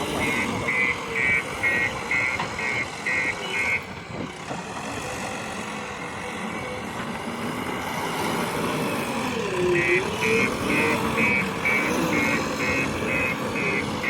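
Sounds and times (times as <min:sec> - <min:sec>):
reversing alarm beeping: 0:00.0 - 0:03.9, 0:09.7 - 0:14.0
diesel engine running: 0:00.0 - 0:14.0.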